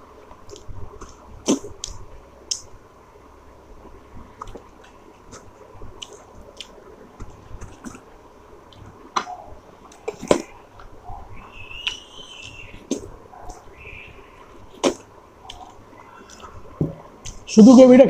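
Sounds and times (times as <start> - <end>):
person chewing food: 4.2 - 8.1, 11.7 - 17.5.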